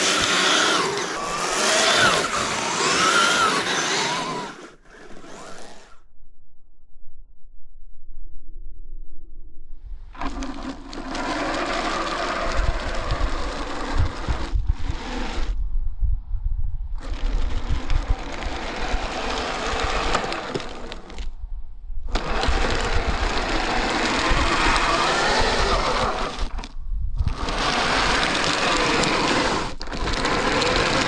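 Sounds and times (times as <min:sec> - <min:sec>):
toy electric motor running: 0:00.0 - 0:06.0, 0:10.2 - 0:15.6, 0:17.0 - 0:21.2, 0:22.1 - 0:31.0
low rumble: 0:05.7 - 0:25.0, 0:26.2 - 0:27.5.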